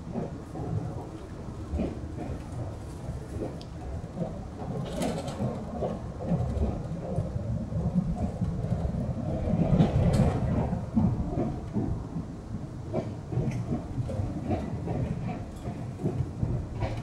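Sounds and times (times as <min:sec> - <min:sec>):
train wheels rumbling on rail: 0:00.0 - 0:17.0
track knocks and clicks: 0:00.1 - 0:07.2, 0:12.9 - 0:17.0.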